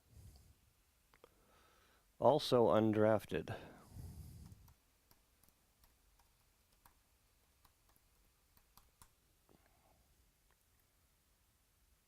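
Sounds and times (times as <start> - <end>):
computer mouse clicks: 4.4 - 9.2.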